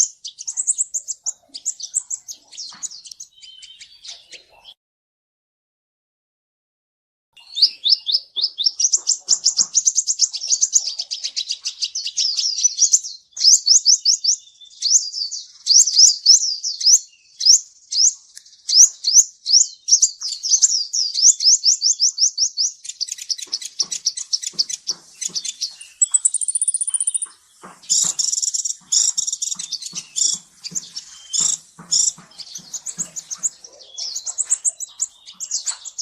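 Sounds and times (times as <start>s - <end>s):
bird chirping trills: 0.0s - 4.8s, 7.4s - 36.0s
thin high bird whistle: 25.9s - 29.1s.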